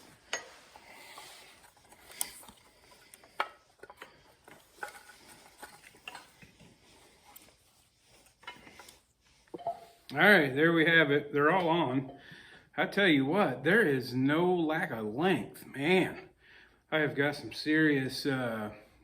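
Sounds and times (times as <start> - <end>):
faint clicks and rubbing of wires: 0.0 - 9.6.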